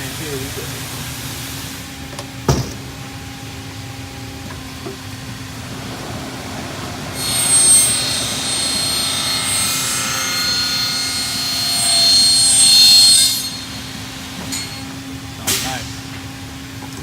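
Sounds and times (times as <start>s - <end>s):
miter saw cutting whine: 4.7s - 15.7s.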